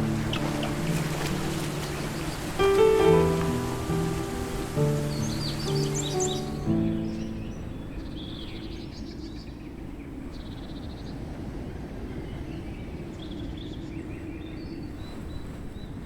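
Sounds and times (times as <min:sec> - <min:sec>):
small animals chirping and trilling: 0:00.0 - 0:08.6
waterfall rushing: 0:00.0 - 0:08.6.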